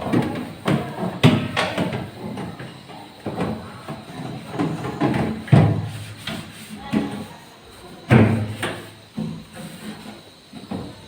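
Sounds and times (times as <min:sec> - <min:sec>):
refrigerator parts knocking and clattering: 0:00.0 - 0:06.2, 0:08.1 - 0:09.6.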